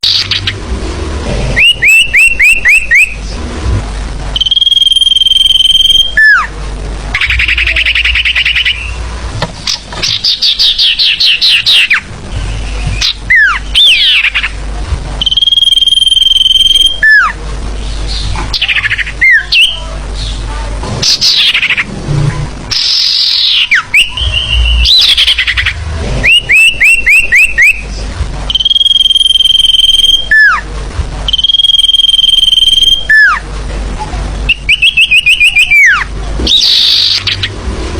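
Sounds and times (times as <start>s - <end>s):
small birds chirping and trilling: 0.0s - 0.6s, 7.1s - 14.6s, 15.2s - 21.9s, 22.7s - 30.6s, 34.5s - 37.6s
long steady whistle: 4.4s - 6.4s, 15.2s - 17.2s, 28.5s - 30.5s, 31.3s - 33.3s.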